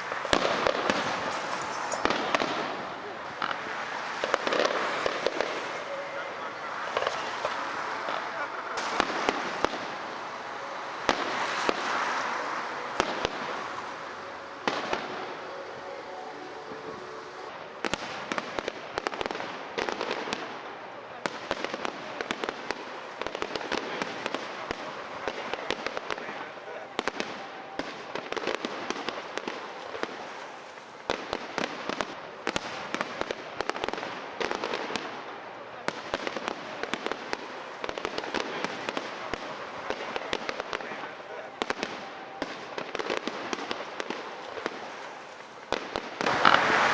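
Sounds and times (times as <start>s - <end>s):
firework shells bursting: 0.0s - 5.9s, 6.8s - 17.0s, 44.9s - 46.9s
constant hiss: 0.0s - 46.9s
fireworks cracks and bangs: 0.0s - 46.9s.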